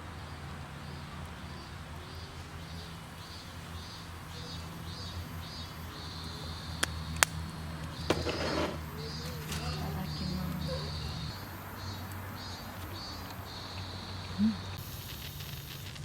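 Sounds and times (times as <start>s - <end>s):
high-pitched chirping calls: 8.8s - 15.7s.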